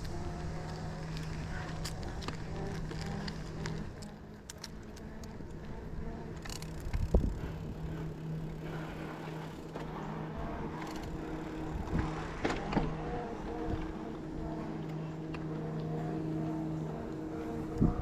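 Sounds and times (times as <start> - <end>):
bicycle tyre noise: 0.0 - 18.0
steady low motor hum: 0.0 - 18.0
wind noise: 5.1 - 8.8, 10.3 - 14.6, 17.3 - 18.0.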